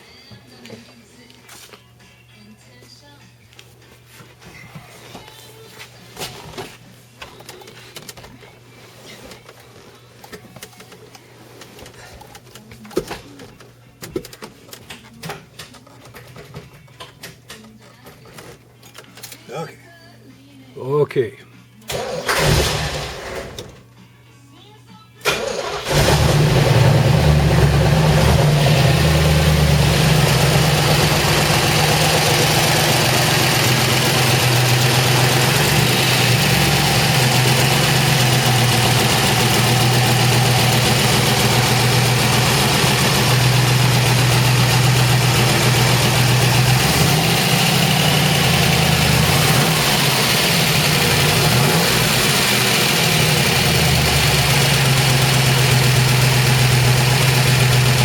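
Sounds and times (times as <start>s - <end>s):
car engine idling: 25.4s - 58.0s.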